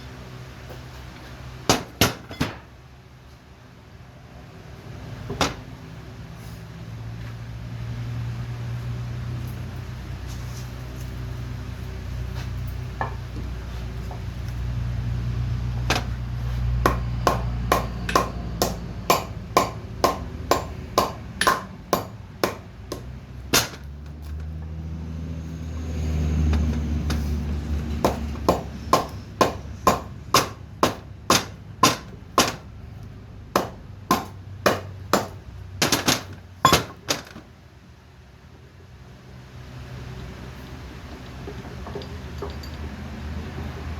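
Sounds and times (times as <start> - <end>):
hammer striking metal: 16.8 - 23.9, 28.0 - 32.6, 33.6 - 37.0.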